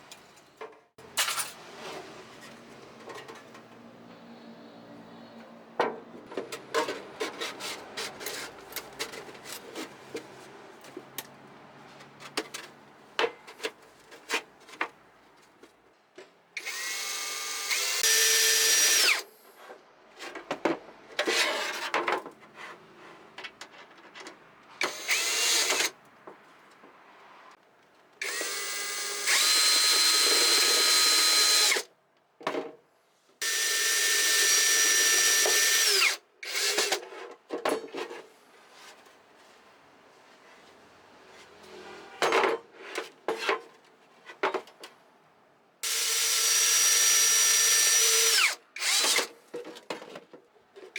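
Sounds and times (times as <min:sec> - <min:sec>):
power drill whining: 0:16.6 - 0:19.2, 0:24.8 - 0:25.9, 0:28.2 - 0:31.8, 0:33.4 - 0:36.9, 0:45.8 - 0:49.2.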